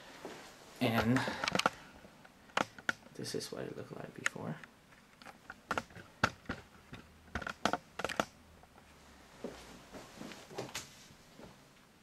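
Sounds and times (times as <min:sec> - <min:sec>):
sharp clicks and taps: 0:02.5 - 0:03.2, 0:04.2 - 0:08.4
rustling handling noise: 0:08.8 - 0:11.7.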